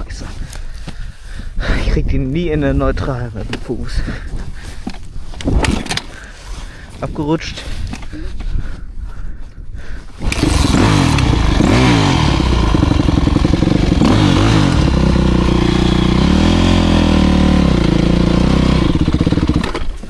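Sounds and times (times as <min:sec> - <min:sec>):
motorbike engine revving: 0:10.2 - 0:20.0.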